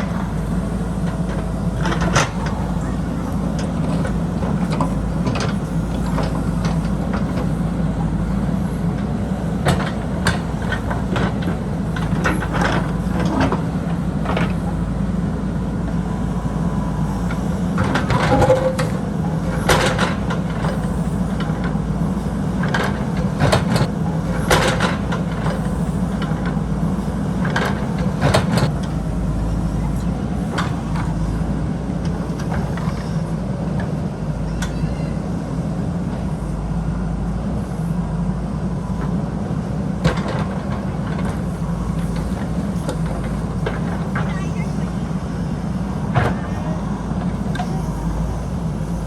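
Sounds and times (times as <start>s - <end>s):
diesel engine running: 0.0s - 49.0s
machine clanks and knocks: 17.2s - 29.0s.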